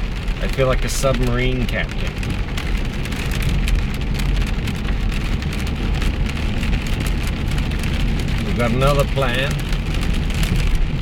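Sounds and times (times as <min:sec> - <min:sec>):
heavy rain: 0:00.0 - 0:11.0.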